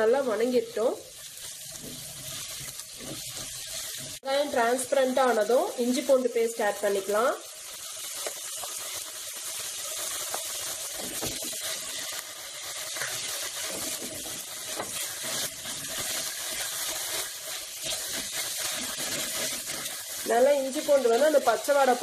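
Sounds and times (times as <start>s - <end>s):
onions sizzling in hot oil: 0.0s - 22.0s
wooden spatula scraping: 1.6s - 4.2s, 12.8s - 21.2s.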